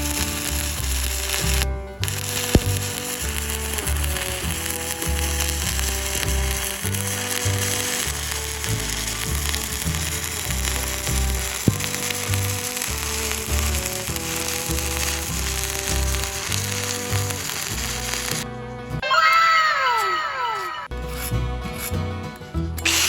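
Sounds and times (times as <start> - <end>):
welding arc crackling and sizzling: 0.0 - 18.4.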